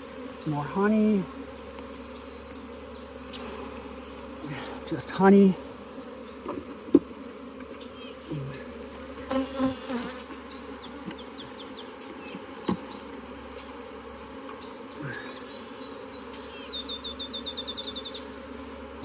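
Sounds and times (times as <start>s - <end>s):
honeybees buzzing: 0.0s - 19.0s
hive frames knocking and scraping: 0.1s - 16.1s.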